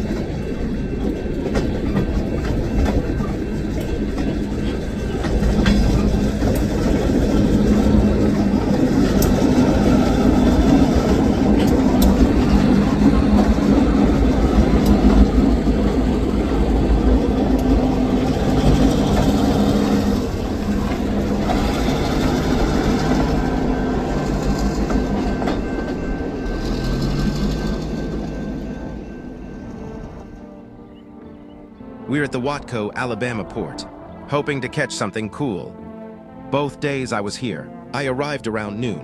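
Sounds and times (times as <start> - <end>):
train wheels clicking over rail joints: 0.0 - 30.6
diesel locomotive engine humming: 0.0 - 39.0.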